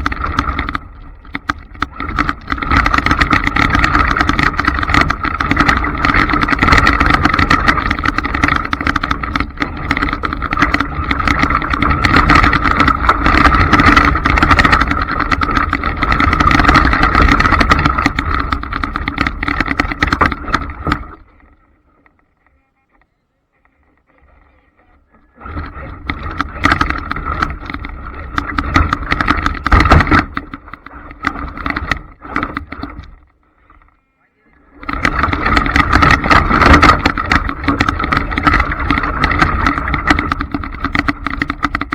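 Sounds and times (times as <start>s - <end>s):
tyres and chassis rattling: 0.0s - 21.4s, 24.6s - 33.2s.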